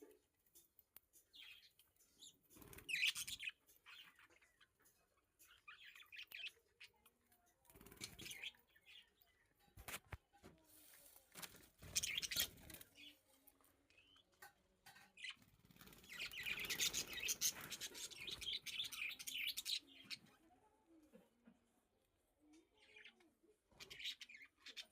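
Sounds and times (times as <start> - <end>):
budgerigars chirping faintly: 0.0 - 9.8, 11.9 - 13.2, 13.9 - 20.4.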